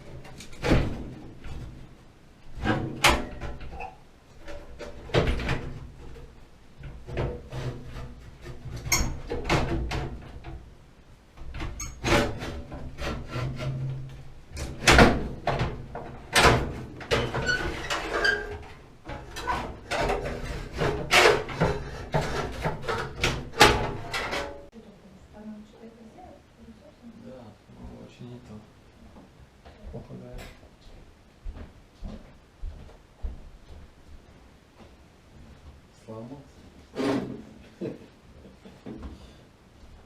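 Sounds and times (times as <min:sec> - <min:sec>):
hard parts knocking and clattering: 0:02.5 - 0:10.7, 0:11.4 - 0:24.7.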